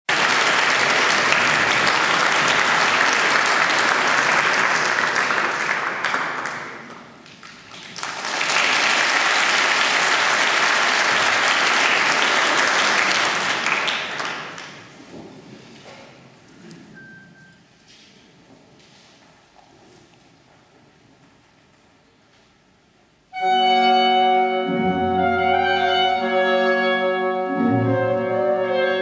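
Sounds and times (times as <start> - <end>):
audience applauding: 0.1 - 15.0.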